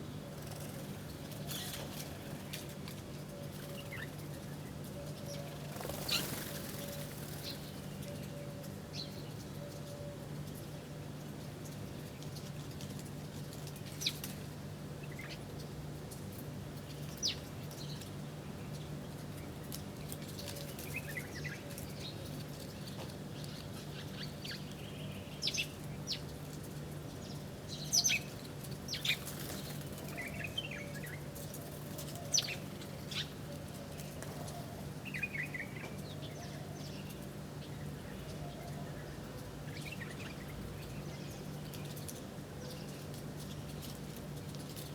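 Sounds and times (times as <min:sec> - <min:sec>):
small birds chirping: 0:27.0 - 0:44.0.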